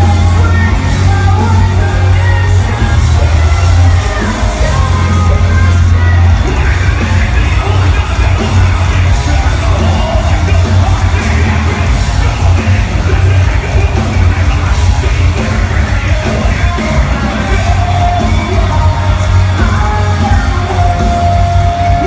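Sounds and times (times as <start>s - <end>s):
metal band playing loudly: 0.0s - 22.0s
yelled vocals: 0.0s - 22.0s.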